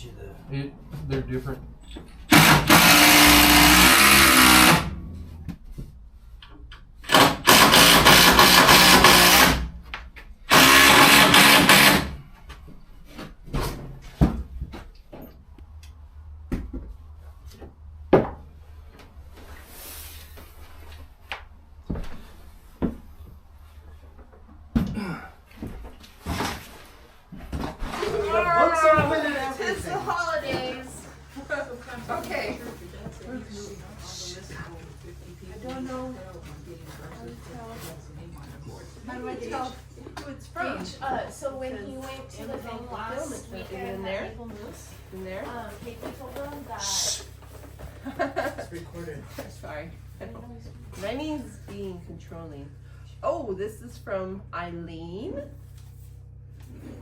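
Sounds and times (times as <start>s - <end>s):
power drill running: 2.1s - 5.1s, 7.0s - 9.8s, 10.5s - 12.3s.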